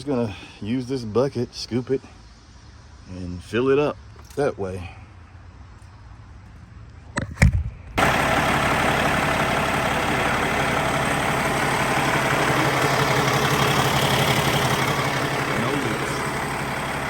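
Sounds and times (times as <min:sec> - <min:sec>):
diesel engine cranking: 0:08.0 - 0:17.0
diesel engine idling: 0:08.0 - 0:17.0.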